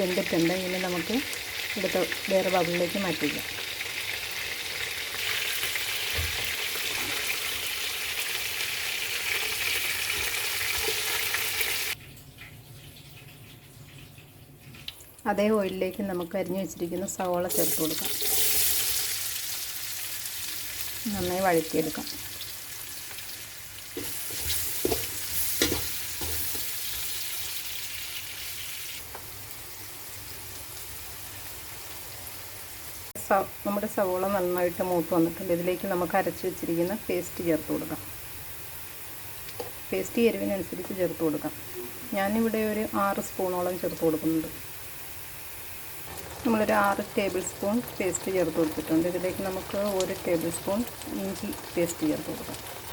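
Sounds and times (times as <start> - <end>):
chicken sizzling in oil: 0.0 - 12.0, 17.5 - 52.9
spatula scraping and knocking pan: 23.9 - 26.8.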